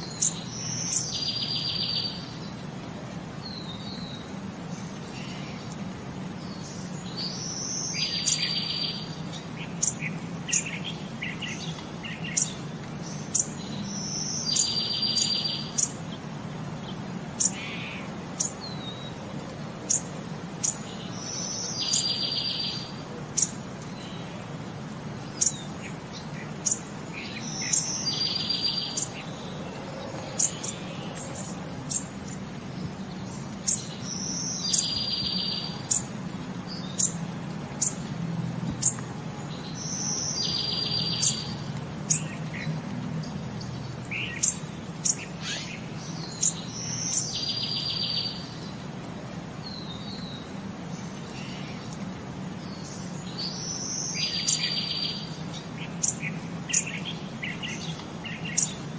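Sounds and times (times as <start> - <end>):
birds chirping: 0.0 - 58.9.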